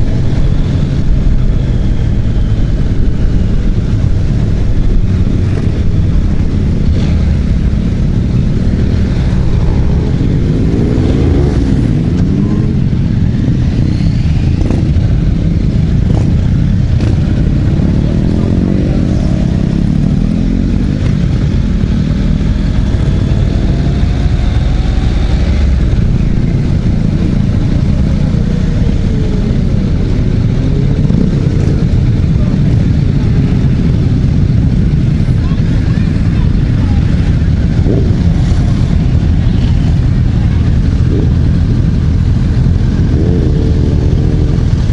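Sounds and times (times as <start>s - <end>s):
motorcycle engines revving: 0.0s - 44.9s.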